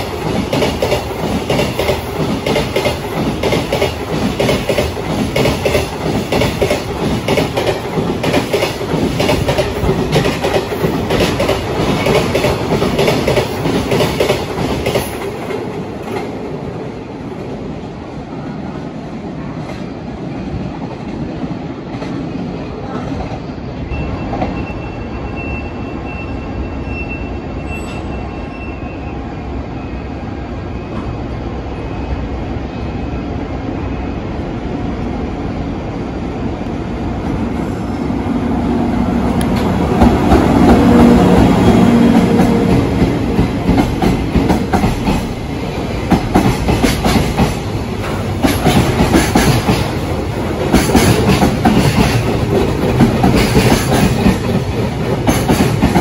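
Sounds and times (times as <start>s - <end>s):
electric locomotive rumble and hum: 29.3s - 56.0s.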